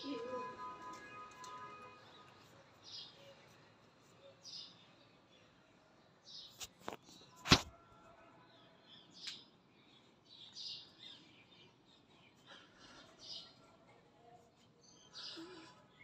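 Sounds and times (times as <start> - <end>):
small birds chirping: 8.8 - 13.6, 14.7 - 16.0.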